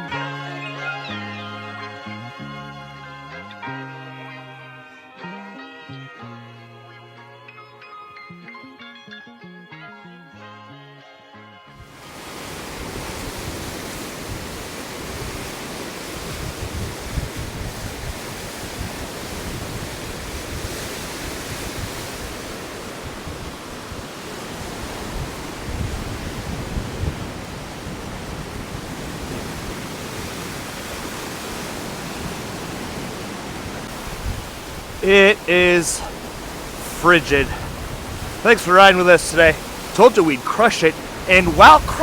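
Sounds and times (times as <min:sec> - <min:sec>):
strong wind on microphone: 0:12.2 - 0:35.0, 0:37.5 - 0:38.4.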